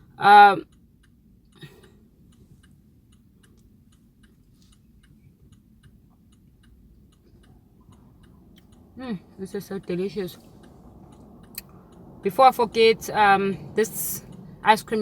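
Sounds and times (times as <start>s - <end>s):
faint even ticking: 0.0s - 15.0s
low steady hum: 0.0s - 15.0s.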